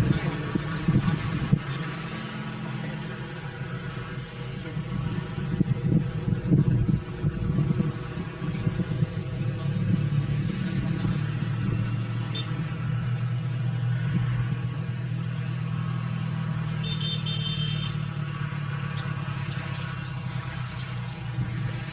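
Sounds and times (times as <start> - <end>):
mill engine running: 0.0 - 16.7.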